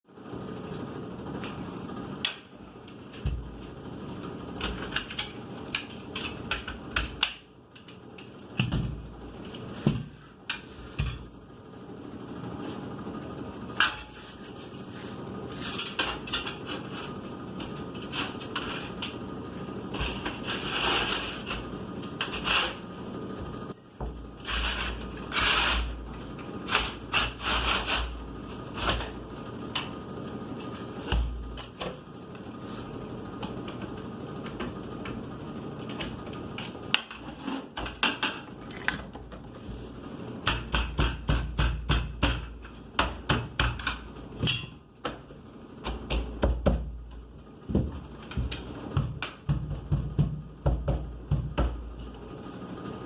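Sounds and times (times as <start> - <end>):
rubbing and scraping: 19.9 - 22.9, 24.4 - 26.0, 26.6 - 29.1.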